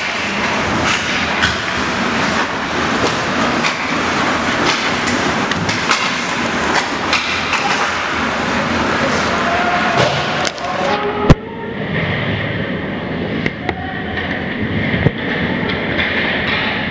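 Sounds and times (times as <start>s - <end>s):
sticks and puck clacking: 4.6s - 8.2s.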